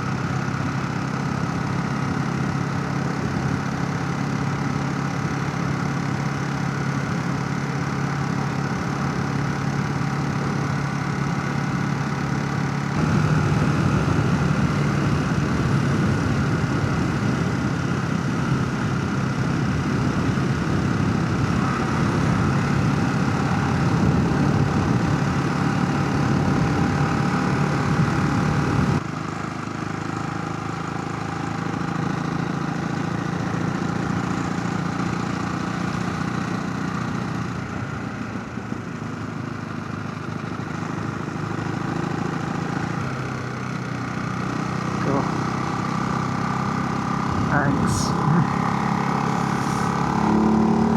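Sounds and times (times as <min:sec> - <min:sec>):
motorcycle engine running: 0:00.0 - 0:50.9
wind rush: 0:13.0 - 0:18.2.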